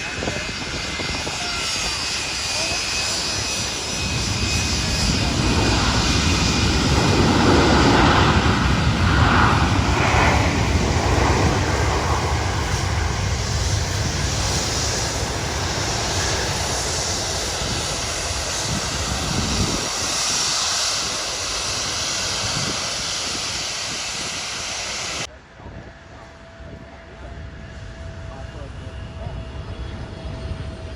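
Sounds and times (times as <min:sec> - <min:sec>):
airliner engine roar: 0:00.0 - 0:30.9.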